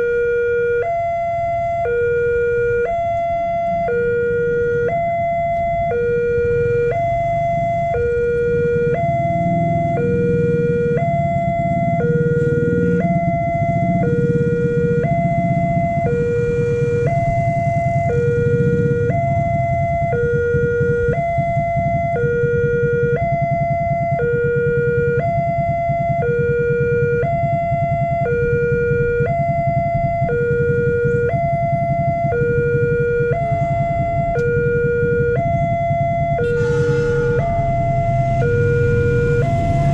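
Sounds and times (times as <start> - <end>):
level crossing warning siren: 0.0 - 39.9
low rumble: 28.8 - 39.9.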